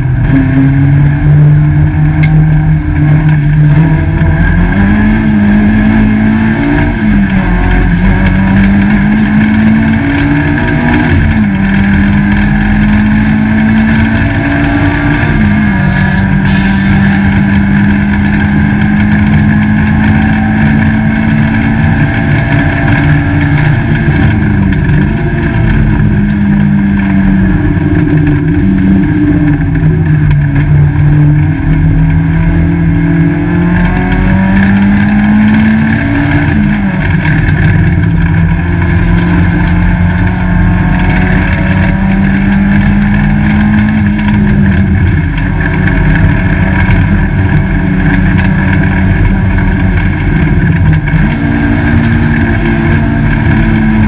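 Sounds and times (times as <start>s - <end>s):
race car engine revving: 0.0s - 54.0s
road and wind rumble: 0.0s - 54.0s.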